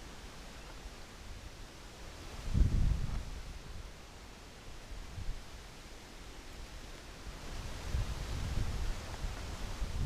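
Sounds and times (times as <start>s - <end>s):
leaves rustling: 0.0s - 10.0s
wind buffeting microphone: 2.4s - 3.9s, 7.4s - 10.0s.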